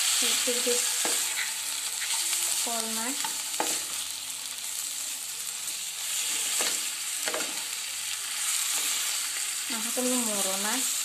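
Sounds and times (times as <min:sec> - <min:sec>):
chicken sizzling in hot oil: 0:00.0 - 0:11.0
spatula scraping a pan: 0:00.3 - 0:04.1, 0:05.6 - 0:10.6.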